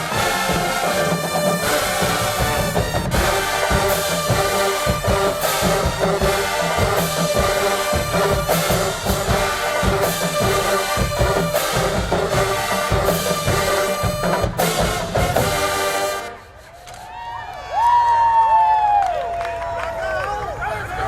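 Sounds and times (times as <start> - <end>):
pounding bass drums: 0.0 - 15.9
brass holding a tune: 0.0 - 17.1
marching band playing: 0.0 - 17.2
snare drums: 0.0 - 17.2.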